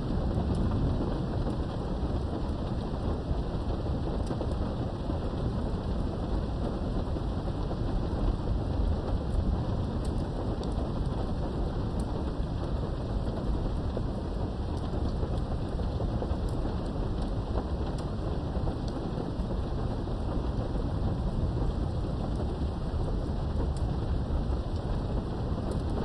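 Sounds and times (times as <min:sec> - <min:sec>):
low rumble of thunder: 0:00.0 - 0:26.0
rain behind a window: 0:00.0 - 0:26.0.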